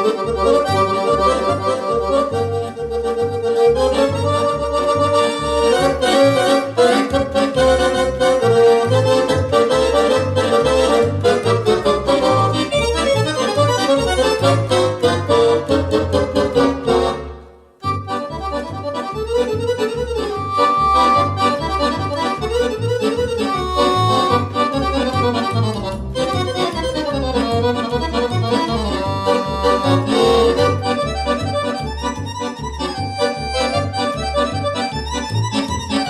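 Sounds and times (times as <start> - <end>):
accordion playing lively tune: 0.0 - 36.0.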